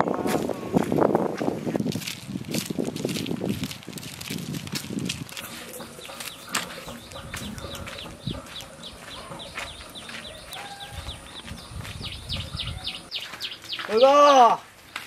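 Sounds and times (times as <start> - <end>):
birds chirping: 5.3 - 15.0.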